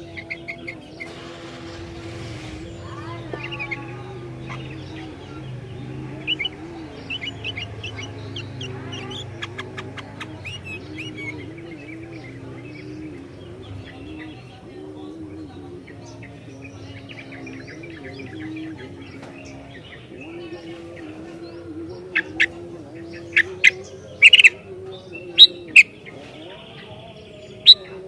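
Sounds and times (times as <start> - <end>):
steady low hum: 0.0 - 26.0
bird chirping: 0.0 - 28.0.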